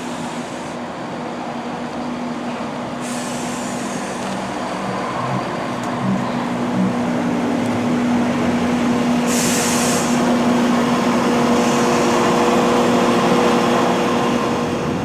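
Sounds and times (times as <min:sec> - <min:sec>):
train running with low hum: 0:00.0 - 0:15.0
air brakes hissing: 0:03.0 - 0:04.5, 0:09.2 - 0:10.4, 0:11.4 - 0:12.5.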